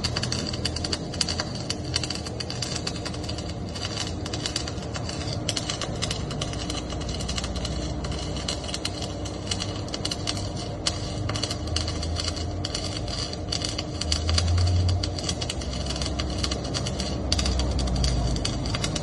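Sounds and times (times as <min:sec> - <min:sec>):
low hum: 0:00.0 - 0:19.0
welding arc crackling: 0:00.0 - 0:19.0.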